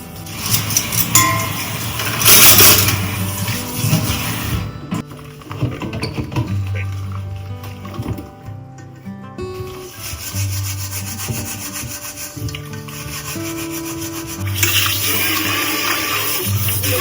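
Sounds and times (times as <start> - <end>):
soft background music: 0.0 - 17.0
brush scrubbing a surface: 9.6 - 17.0
running water hiss: 9.9 - 17.0.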